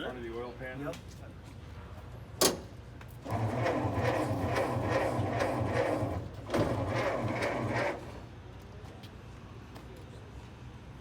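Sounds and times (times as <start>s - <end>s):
engine cranking without starting: 3.3s - 8.2s.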